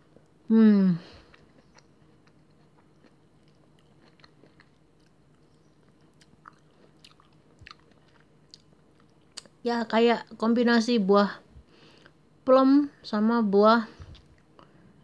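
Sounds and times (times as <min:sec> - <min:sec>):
chewing soft fruit: 0:00.0 - 0:09.6.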